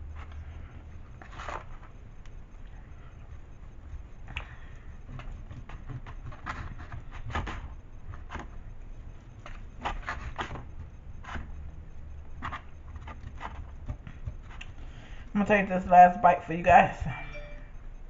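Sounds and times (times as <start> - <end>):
low hum: 15.6 - 18.0.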